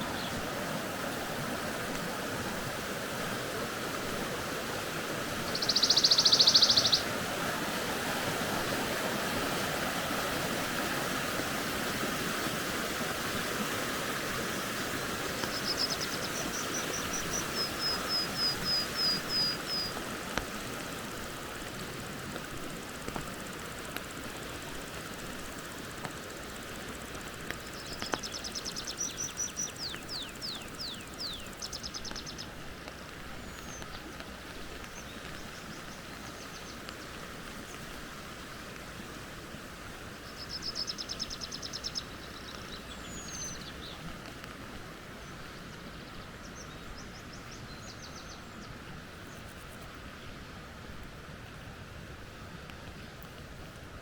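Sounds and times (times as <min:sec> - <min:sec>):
creek flowing: 0:00.0 - 0:54.0
small bird singing: 0:05.5 - 0:07.1, 0:15.4 - 0:20.0, 0:27.5 - 0:32.5, 0:40.2 - 0:44.0.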